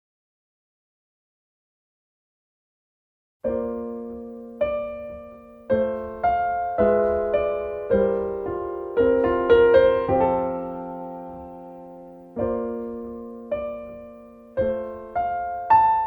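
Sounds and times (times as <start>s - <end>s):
slow gentle piano: 3.4s - 16.0s.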